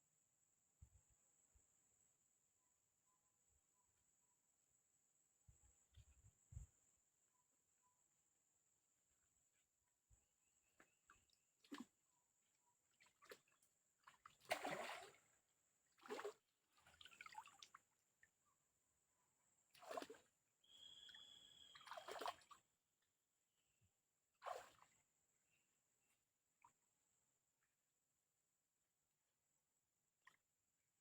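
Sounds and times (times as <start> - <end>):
water splashing and trickling: 13.0 - 15.3, 16.0 - 17.9, 19.8 - 20.2, 21.1 - 22.6, 24.4 - 25.0.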